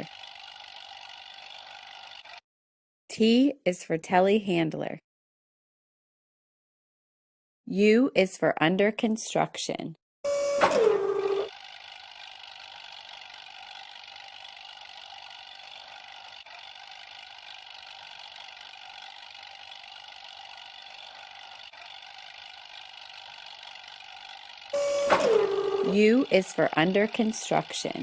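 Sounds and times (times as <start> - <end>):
engine running: 0.0 - 2.4, 10.3 - 28.0.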